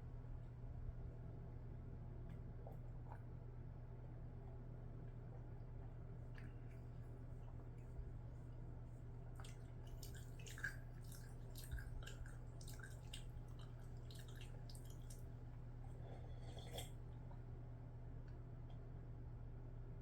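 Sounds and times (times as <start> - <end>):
steady low hum: 0.0 - 20.0
wet chewing and mouth clicks: 9.3 - 17.0.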